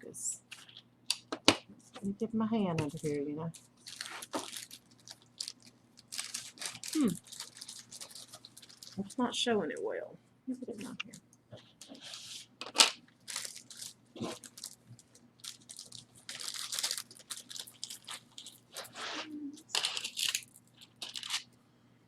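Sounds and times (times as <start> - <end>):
packaging crinkling and rustling: 2.8 - 9.2, 11.8 - 21.5.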